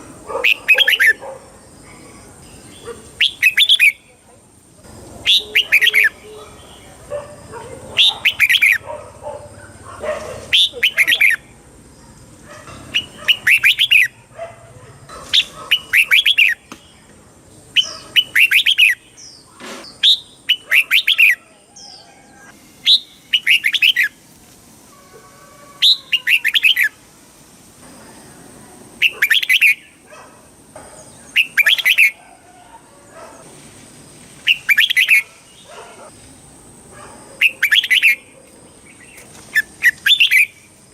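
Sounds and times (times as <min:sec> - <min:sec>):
bulbul singing: 0:01.9 - 0:04.2, 0:05.2 - 0:08.9, 0:10.4 - 0:11.6, 0:12.7 - 0:14.3, 0:15.4 - 0:22.1, 0:22.8 - 0:24.2, 0:29.0 - 0:30.0, 0:30.8 - 0:32.2, 0:34.4 - 0:36.1, 0:37.4 - 0:40.8.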